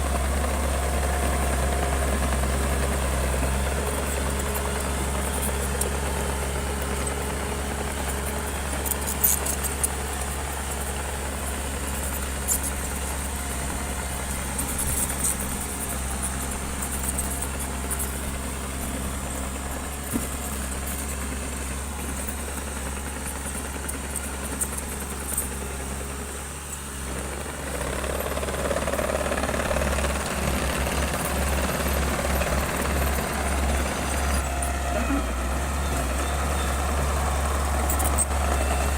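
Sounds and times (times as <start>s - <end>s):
diesel engine droning: 0.0s - 38.9s.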